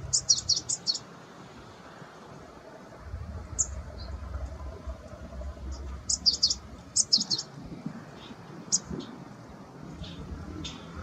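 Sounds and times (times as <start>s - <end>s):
songbird chirping: 0.0s - 11.0s
low rumble: 2.7s - 8.0s.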